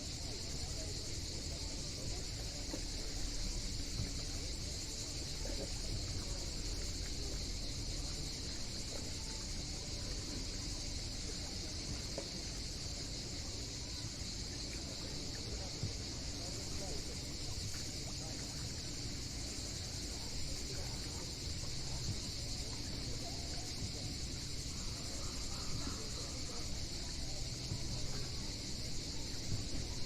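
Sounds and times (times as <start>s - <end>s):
cicadas buzzing: 0.0s - 30.0s.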